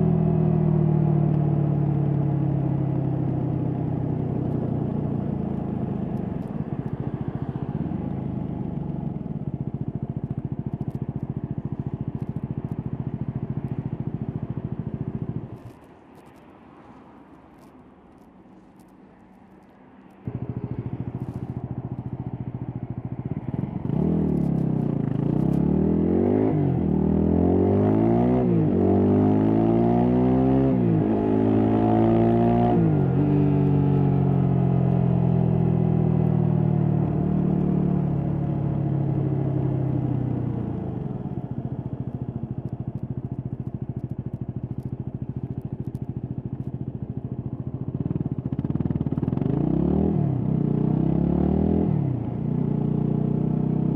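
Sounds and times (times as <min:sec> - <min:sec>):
motorcycle engine accelerating: 0:20.2 - 0:53.9.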